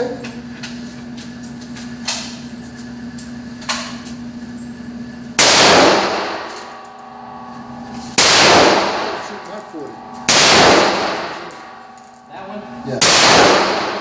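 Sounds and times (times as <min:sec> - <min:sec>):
gunshots: 0:05.4 - 0:06.4, 0:08.2 - 0:09.4, 0:10.3 - 0:11.5, 0:13.0 - 0:14.0.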